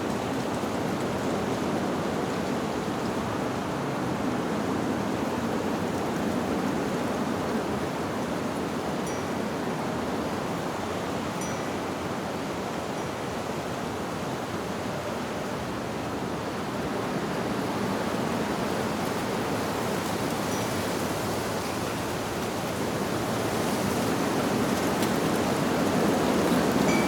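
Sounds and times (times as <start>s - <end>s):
wind blowing through leaves: 0.0s - 27.0s
faint wind chime tings: 9.0s - 9.5s, 11.3s - 12.1s, 20.4s - 22.0s, 26.8s - 27.0s.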